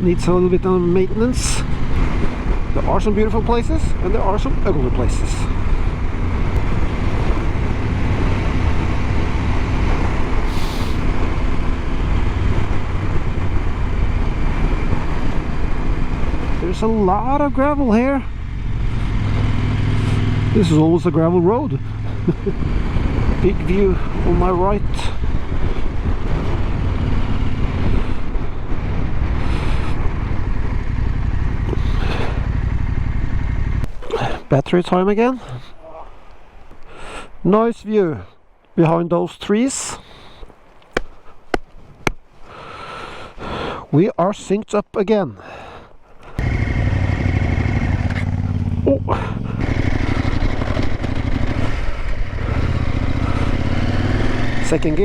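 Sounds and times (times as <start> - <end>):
wind rushing over microphone: 0.0 - 34.5, 46.3 - 55.0
motorcycle engine running: 0.1 - 33.9, 46.4 - 55.0.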